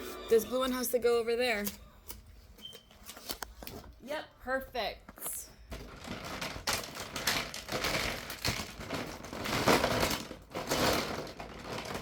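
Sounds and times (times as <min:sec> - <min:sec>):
plastic toy pieces rummaged: 0:05.7 - 0:12.0.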